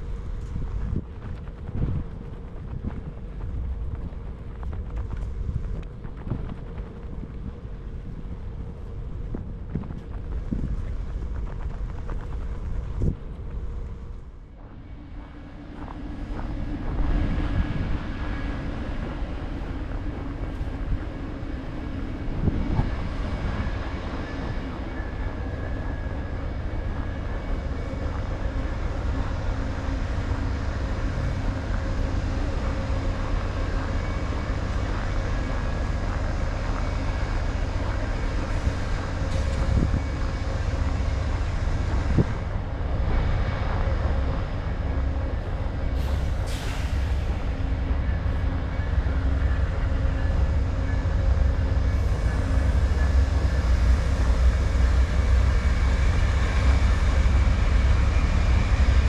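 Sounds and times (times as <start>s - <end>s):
faint whining tones: 0.0s - 59.0s
train rumbling: 0.0s - 59.0s.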